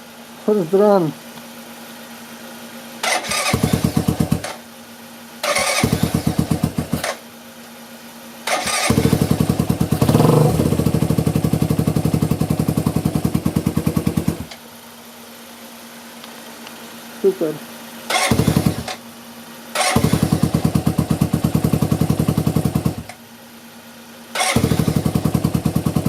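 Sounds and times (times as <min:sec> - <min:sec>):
motorcycle engine firing: 0:03.0 - 0:04.6, 0:05.4 - 0:07.2, 0:08.5 - 0:14.6, 0:18.1 - 0:19.0, 0:19.7 - 0:23.2, 0:24.3 - 0:26.0.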